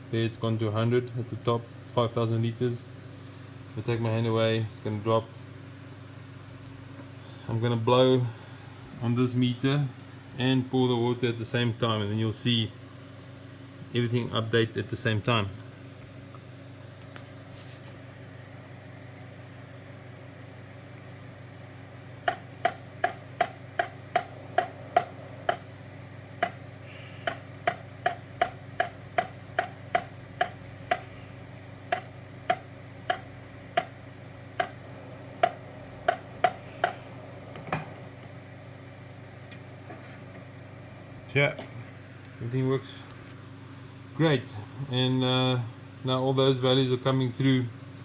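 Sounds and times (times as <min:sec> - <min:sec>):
steady low hum: 0:00.0 - 0:48.0
rain gauge clicking: 0:22.3 - 0:25.7, 0:27.2 - 0:31.1, 0:31.9 - 0:34.0, 0:34.6 - 0:34.8.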